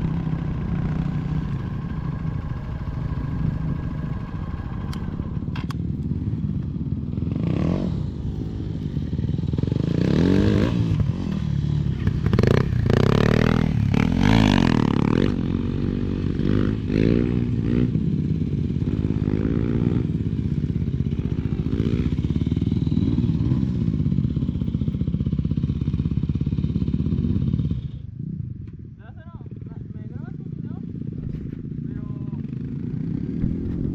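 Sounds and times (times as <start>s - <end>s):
vehicle engine revving: 32.6s - 33.9s.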